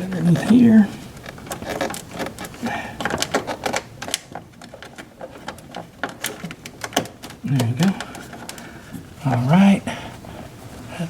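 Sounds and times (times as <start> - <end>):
car parts clicking and knocking: 1.2 - 9.4.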